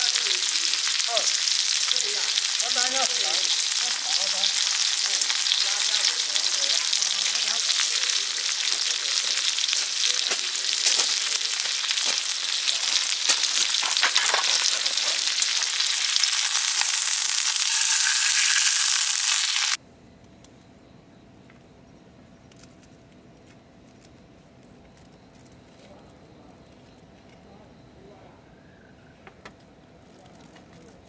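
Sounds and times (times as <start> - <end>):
food frying with sizzling hiss: 0.0 - 19.8.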